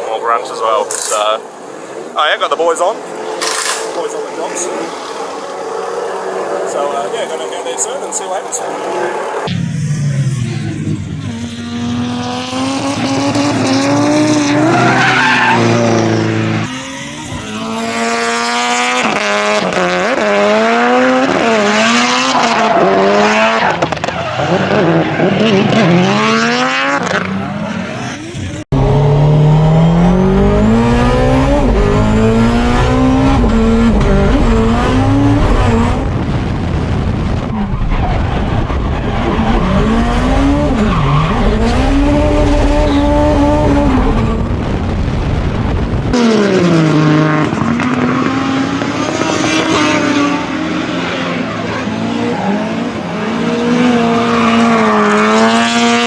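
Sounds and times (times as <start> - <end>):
car engine revving hard: 9.3 - 56.0.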